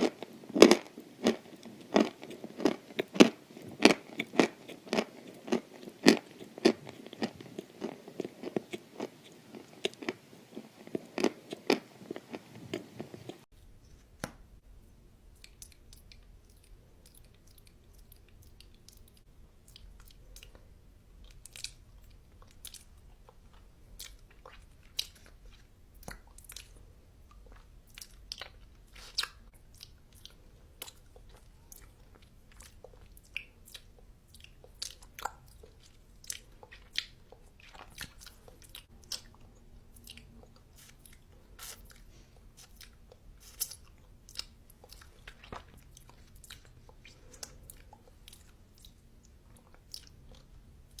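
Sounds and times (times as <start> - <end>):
person chewing crunchy food: 0.0 - 13.5, 15.4 - 51.0.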